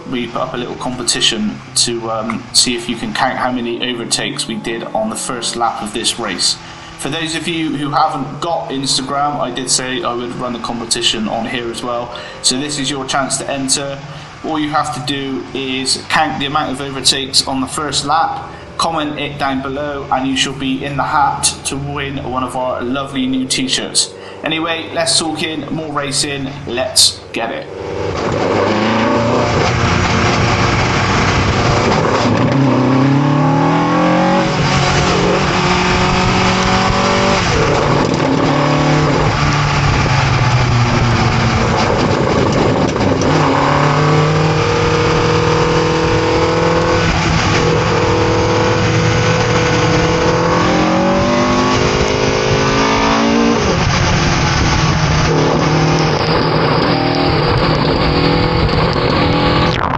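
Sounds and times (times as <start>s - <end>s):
race car engine accelerating: 0.0s - 59.9s
constant rushing noise: 34.4s - 59.9s.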